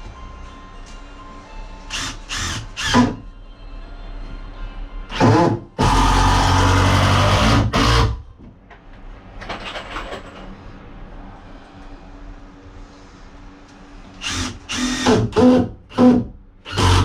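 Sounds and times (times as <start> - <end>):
handheld power tool running: 14.2 - 17.0.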